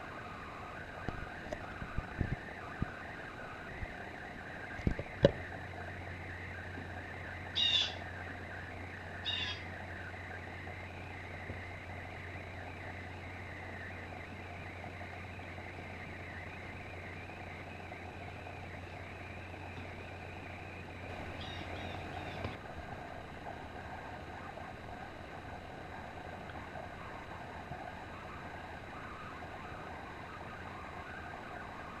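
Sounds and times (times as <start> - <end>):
steady low hum: 0.0 - 32.0
blue jay calls: 7.6 - 8.0, 9.2 - 9.7, 21.3 - 22.4.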